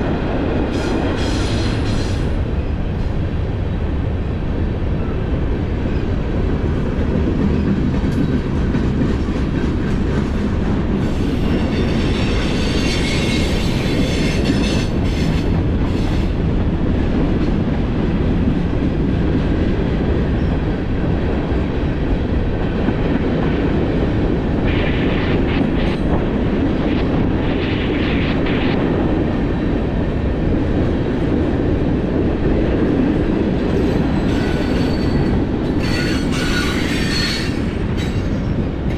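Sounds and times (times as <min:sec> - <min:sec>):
train wheels rumbling on rail: 0:00.0 - 0:38.9
high-pitched wheel squeal: 0:34.3 - 0:38.3.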